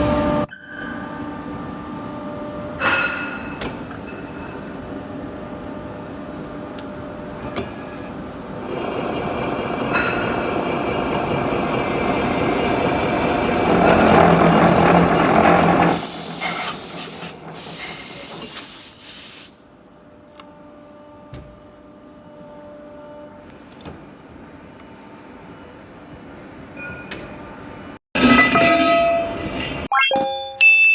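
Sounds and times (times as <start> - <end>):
welding and trimming machine running: 8.6 - 17.7.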